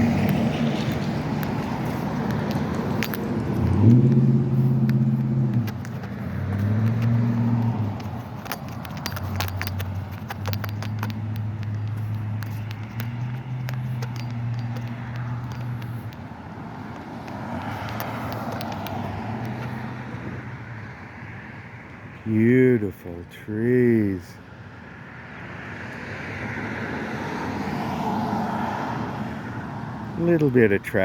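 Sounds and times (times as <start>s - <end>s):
light clicks and jingles: 0.0s - 20.0s
cars driving by: 0.0s - 31.0s.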